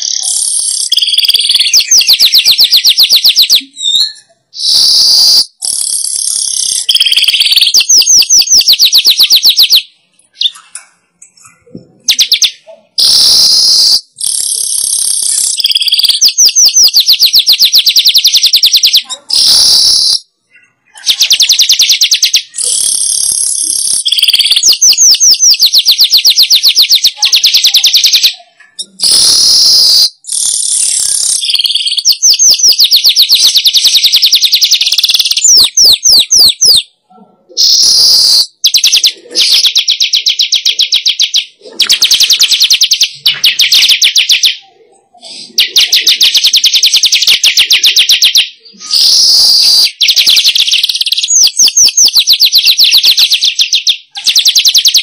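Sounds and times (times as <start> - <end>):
weaver bird buzzy trills: 4.6 - 9.8, 13.0 - 20.2, 21.1 - 28.3, 28.9 - 36.8, 37.6 - 44.5, 45.5 - 55.0.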